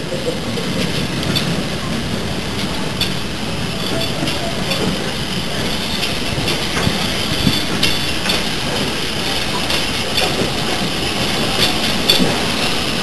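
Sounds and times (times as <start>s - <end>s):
railway coaches rumbling past: 0.0s - 13.0s
wheel clicks over rail joints: 0.1s - 13.0s.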